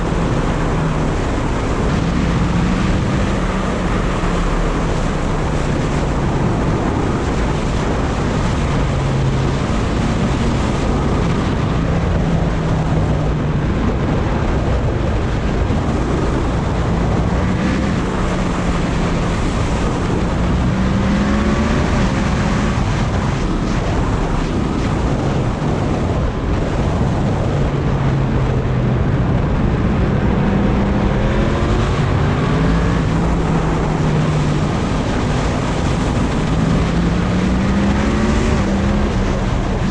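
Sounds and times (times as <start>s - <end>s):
wind buffeting microphone: 0.0s - 39.9s
motorcycle engine revving: 29.3s - 39.9s.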